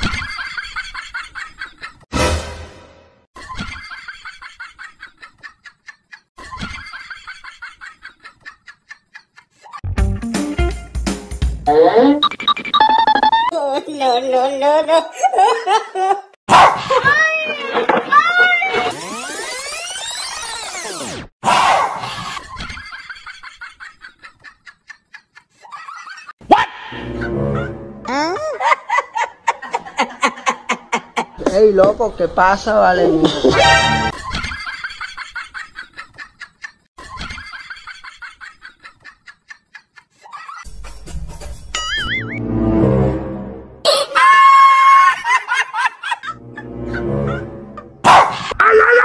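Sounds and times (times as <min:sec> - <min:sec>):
aggressive dog barking: 0:16.5 - 0:16.9, 0:21.5 - 0:22.1, 0:48.0 - 0:48.6
dog yapping: 0:48.1 - 0:49.0.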